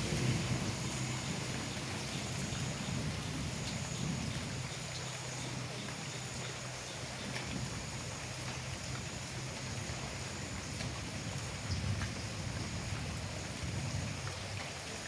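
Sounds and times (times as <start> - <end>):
steady rain falling: 0.0 - 15.0
drip ticks: 3.6 - 15.0.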